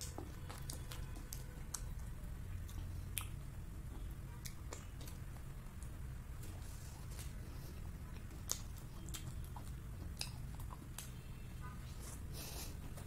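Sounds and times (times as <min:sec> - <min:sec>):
chewing with wet mouth clicks: 0:00.0 - 0:06.0, 0:08.1 - 0:11.2.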